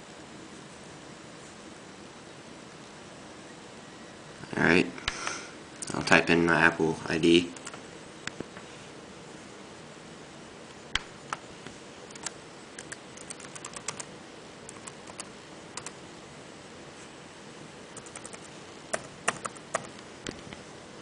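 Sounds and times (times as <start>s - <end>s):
keyboard key clicks: 18.0s - 19.9s.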